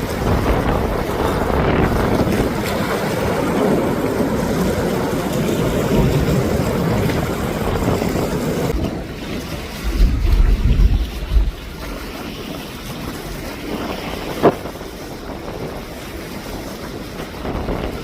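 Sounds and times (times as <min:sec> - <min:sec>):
wind buffeting microphone: 0:00.0 - 0:18.0
jet engine rumble: 0:03.2 - 0:16.1.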